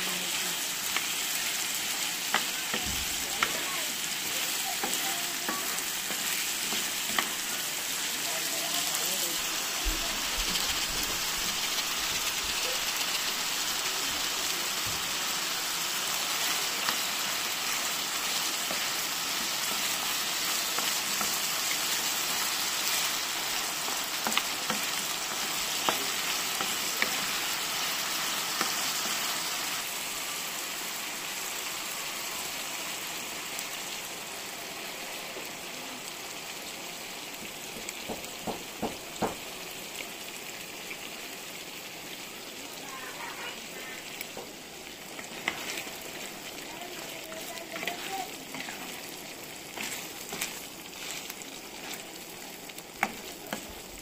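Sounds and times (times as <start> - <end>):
food sizzling in oil: 0.0 - 54.0
wooden spoon tapping pan: 37.7 - 39.5.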